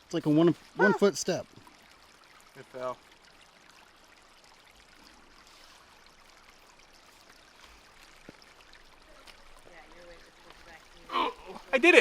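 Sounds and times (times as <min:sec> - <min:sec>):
stream running water: 0:00.0 - 0:12.0.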